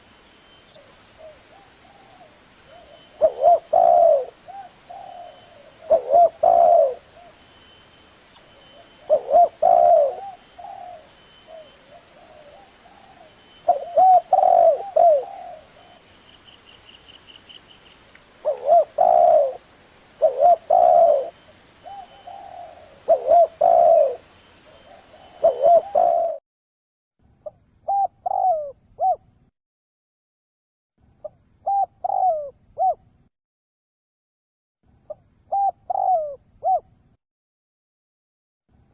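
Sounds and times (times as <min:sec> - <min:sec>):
dove cooing: 0:00.8 - 0:07.4, 0:08.8 - 0:16.0, 0:18.4 - 0:26.4, 0:27.4 - 0:29.3, 0:31.2 - 0:33.0, 0:35.1 - 0:36.9.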